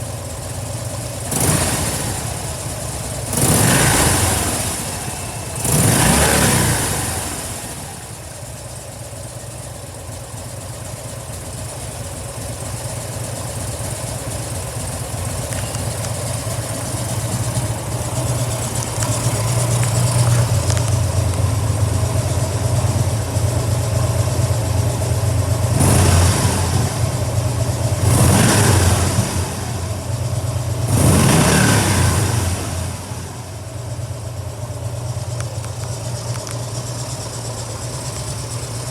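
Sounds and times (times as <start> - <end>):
motorcycle engine idling: 0.0 - 38.9
motorcycle throttle revs: 1.2 - 8.2, 15.2 - 21.3, 25.6 - 33.6.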